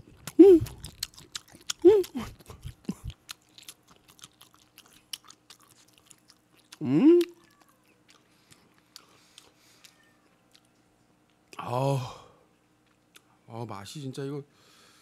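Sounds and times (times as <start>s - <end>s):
person humming mmm: 0.0s - 1.1s, 1.7s - 3.2s, 6.7s - 7.5s
person chewing food: 0.0s - 11.4s.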